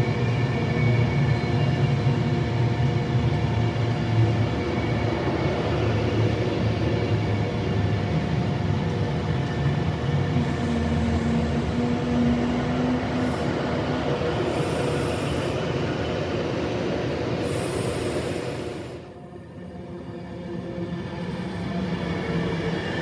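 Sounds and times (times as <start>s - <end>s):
train rumbling with humming tone: 0.0s - 23.0s.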